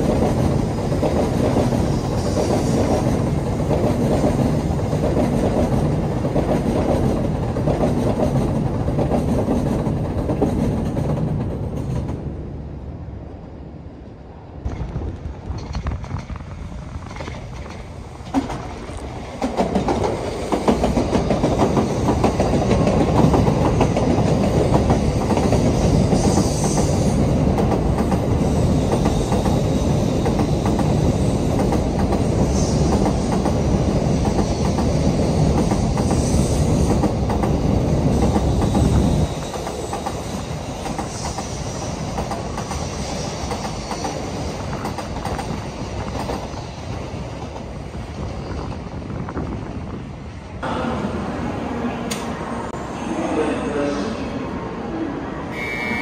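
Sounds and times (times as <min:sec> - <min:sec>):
train rumbling past: 0:00.0 - 0:56.0.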